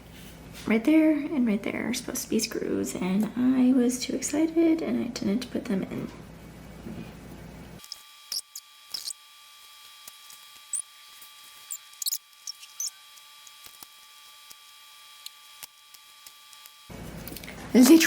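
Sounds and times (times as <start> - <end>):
small squeaks: 7.8 - 9.2, 10.1 - 14.6.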